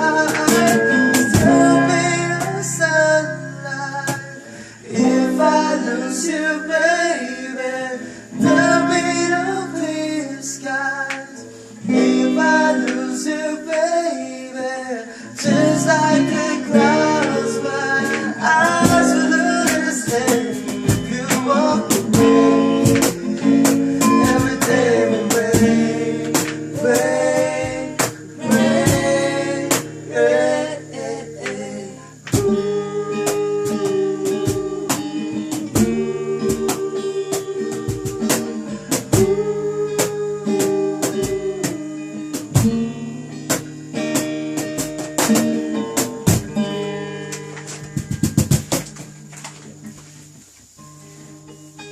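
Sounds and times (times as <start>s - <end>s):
person singing: 0.0s - 43.6s
strummed guitar: 0.0s - 51.9s.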